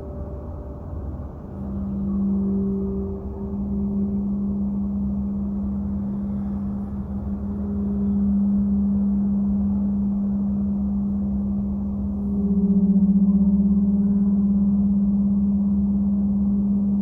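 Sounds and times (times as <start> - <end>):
deep low drone: 0.0 - 17.0.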